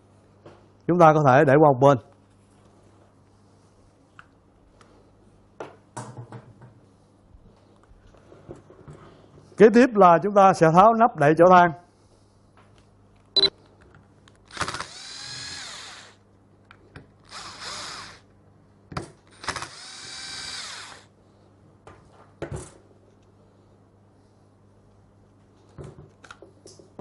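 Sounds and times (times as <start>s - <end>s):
electric screwdriver motor whining: 14.5s - 16.2s, 17.2s - 18.3s, 19.3s - 21.1s.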